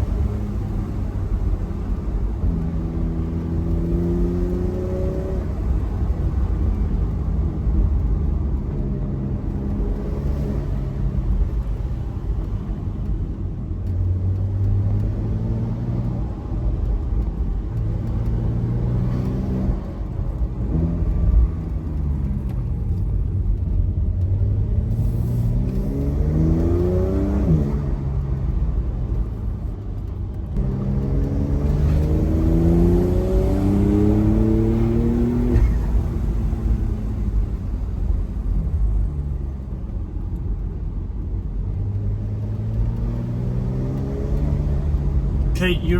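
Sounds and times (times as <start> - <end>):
car engine revving: 0.0 - 8.6, 30.6 - 38.1, 41.7 - 45.9.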